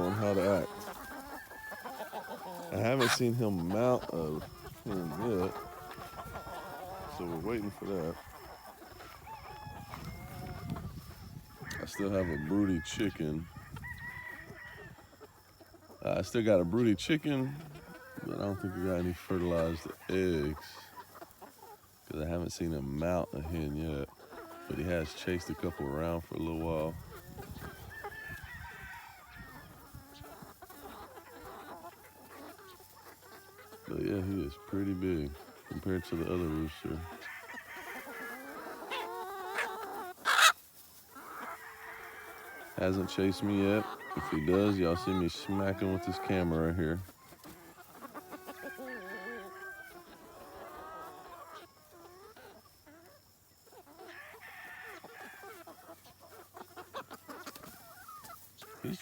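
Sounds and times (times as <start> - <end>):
rooster crowing: 0.0 - 2.7, 11.6 - 15.2, 27.8 - 29.8, 41.4 - 43.3
chickens clucking and squawking: 0.0 - 59.0.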